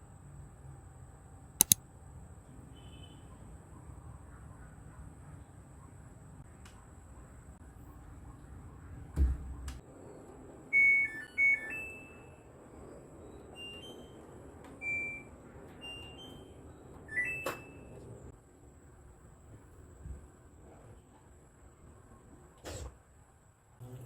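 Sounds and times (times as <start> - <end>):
sharp click: 1.6 - 1.8.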